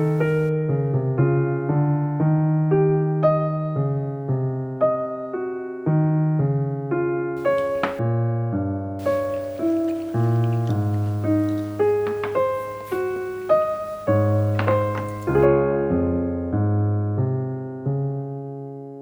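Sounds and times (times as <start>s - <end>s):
slow solo piano music: 0.0s - 0.5s, 7.4s - 8.0s, 9.0s - 15.5s.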